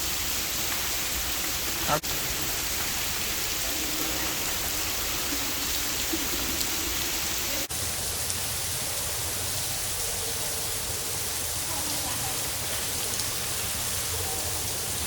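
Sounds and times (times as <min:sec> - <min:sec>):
artificial rain pouring: 0:00.0 - 0:15.0.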